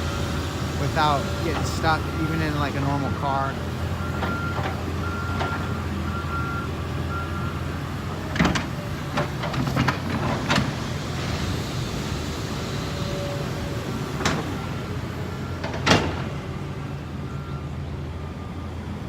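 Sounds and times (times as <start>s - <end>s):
heavy machinery engine hum: 0.0s - 19.0s
backup alarm beeping: 0.9s - 7.6s.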